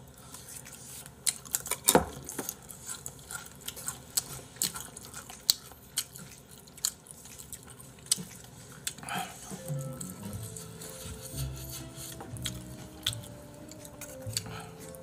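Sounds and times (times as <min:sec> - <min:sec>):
chewing food: 0:00.0 - 0:15.0.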